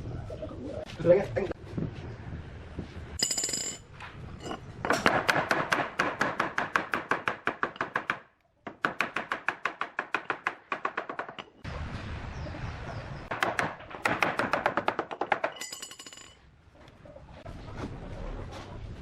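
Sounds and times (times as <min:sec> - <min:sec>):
rapid strikes on wood: 0:04.9 - 0:11.4, 0:13.3 - 0:15.5.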